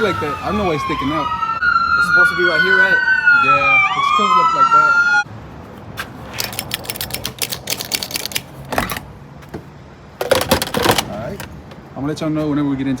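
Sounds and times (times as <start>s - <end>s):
small parts clicking and rattling: 6.3s - 9.1s.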